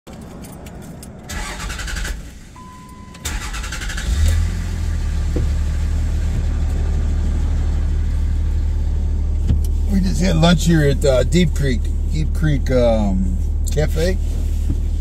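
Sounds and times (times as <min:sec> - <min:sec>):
engine starter cranking: 0:01.3 - 0:05.0
engine idling: 0:01.3 - 0:14.6
short steady beep: 0:02.6 - 0:03.3.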